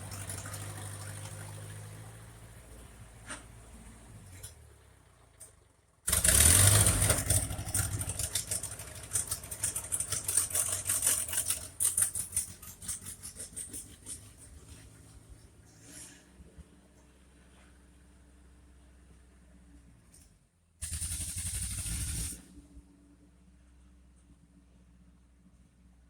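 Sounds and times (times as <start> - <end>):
tractor engine running unevenly: 0.0 - 15.7.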